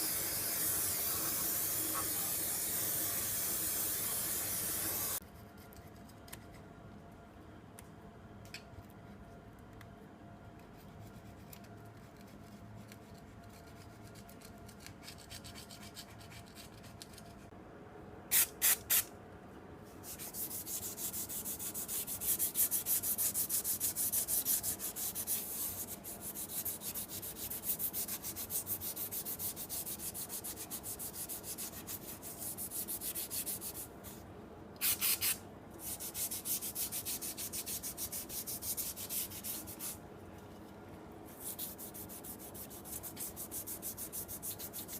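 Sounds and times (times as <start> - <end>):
hissing bursts: 0.0 - 5.2.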